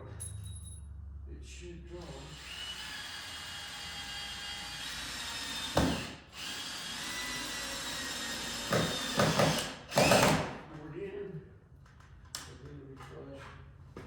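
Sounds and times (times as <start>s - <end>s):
power drill whining: 2.2s - 10.4s.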